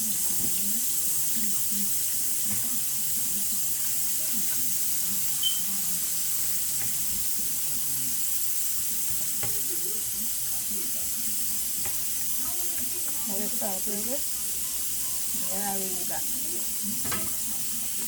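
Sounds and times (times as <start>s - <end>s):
food sizzling in hot oil: 0.0s - 18.0s
high-pitched squeak: 5.4s - 5.7s.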